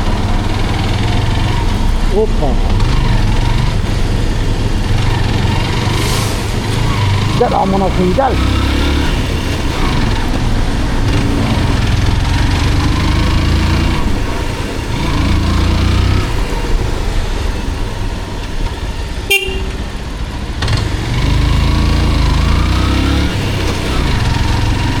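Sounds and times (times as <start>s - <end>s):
motorcycle engine rumbling: 0.0s - 25.0s
road and wind noise: 0.0s - 25.0s
horn beep: 19.2s - 20.0s.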